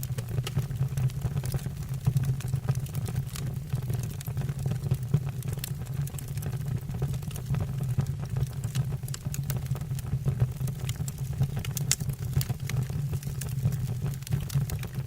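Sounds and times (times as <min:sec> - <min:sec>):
fire crackling and popping: 0:00.0 - 0:15.0
fire flames roaring: 0:08.2 - 0:15.0.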